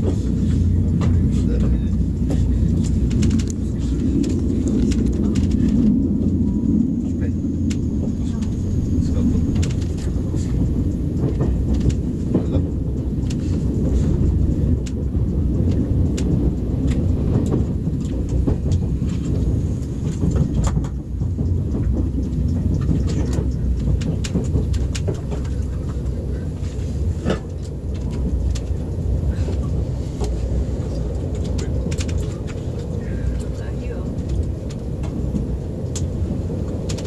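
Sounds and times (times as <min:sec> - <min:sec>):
train rumble from inside carriage: 0:00.0 - 0:37.0
light clicks and ticks: 0:09.5 - 0:28.8.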